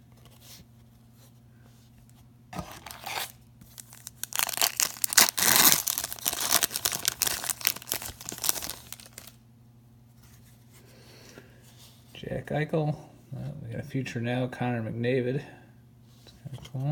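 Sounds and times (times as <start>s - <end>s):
plastic wrapper tearing and crinkling: 2.6s - 9.4s.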